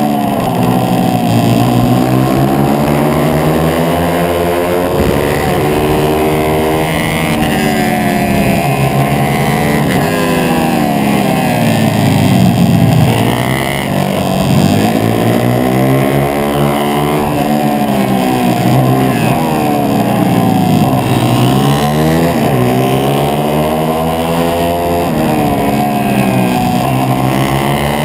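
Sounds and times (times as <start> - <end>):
motorbike engine running hard: 0.0 - 28.0
other motorbike engines: 0.0 - 28.0
wind noise: 0.4 - 15.7.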